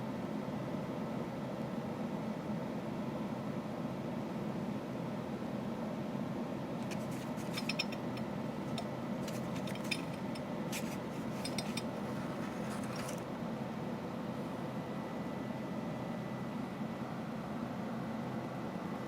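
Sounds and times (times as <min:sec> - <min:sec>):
light metallic clinks: 0:06.8 - 0:13.2.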